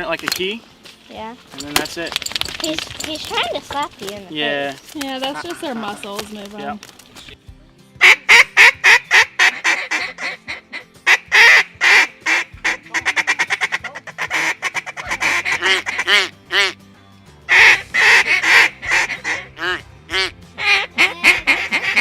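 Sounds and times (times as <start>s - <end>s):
duck quacking: 8.0s - 16.8s, 17.5s - 22.0s.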